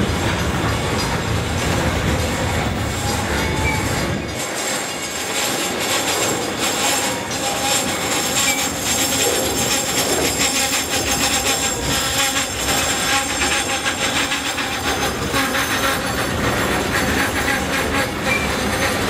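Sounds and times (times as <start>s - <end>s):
freight cars rattling: 0.0s - 19.0s
train wheels clattering on rails: 0.0s - 19.0s.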